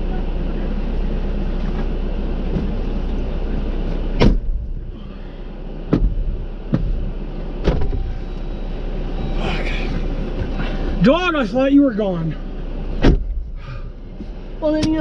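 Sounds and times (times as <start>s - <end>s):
vehicle engine rumbling: 0.0s - 15.0s
sharp knocks: 5.9s - 8.0s.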